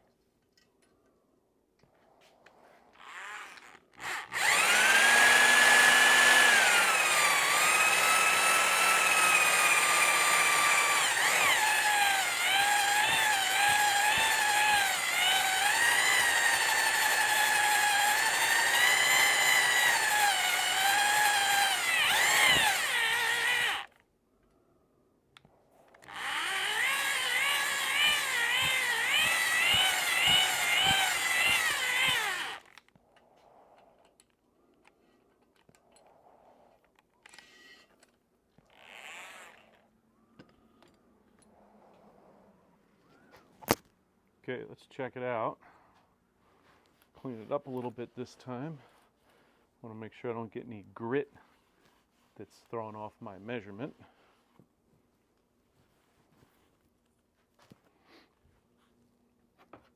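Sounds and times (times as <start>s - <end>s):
power drill spinning cylinder hone: 2.9s - 23.9s, 26.0s - 32.8s.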